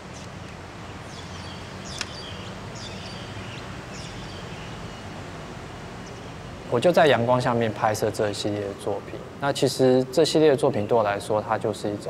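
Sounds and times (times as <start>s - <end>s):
birds chirping: 0.0s - 9.7s
low background hum: 0.0s - 12.0s
sharp click: 1.9s - 2.2s.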